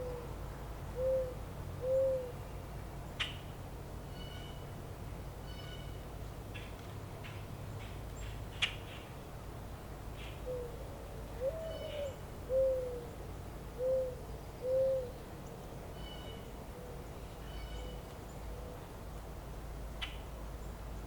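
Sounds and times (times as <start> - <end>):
low outdoor rumble: 0.0 - 21.0
bird hooting: 1.0 - 2.4, 11.4 - 13.2, 13.8 - 15.2.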